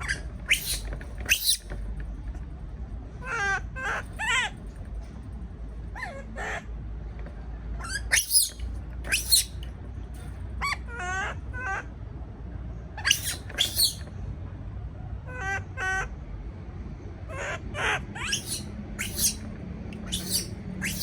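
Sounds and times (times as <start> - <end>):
baby monkey crying: 0.0 - 1.6, 7.8 - 9.6, 13.0 - 14.0, 17.8 - 19.4, 20.0 - 21.0.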